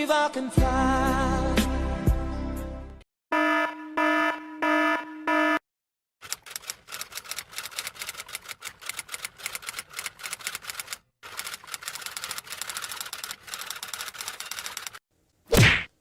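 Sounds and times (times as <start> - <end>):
rapid keyboard typing: 6.2 - 15.0.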